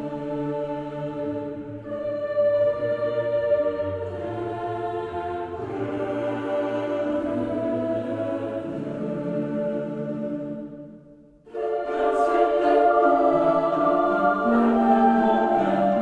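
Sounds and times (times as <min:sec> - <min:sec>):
choral music: 0:00.0 - 0:16.0.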